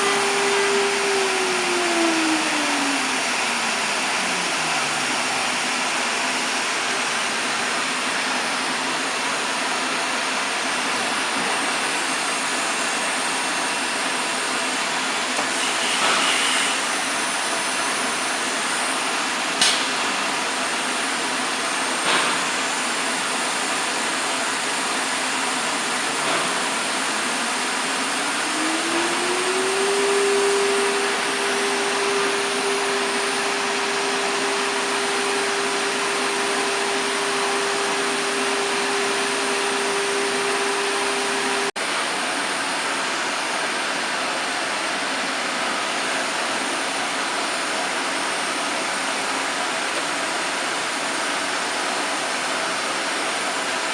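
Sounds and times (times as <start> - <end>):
spindle whine: 0.0 - 7.9, 28.1 - 41.7
cnc router running: 0.0 - 53.9.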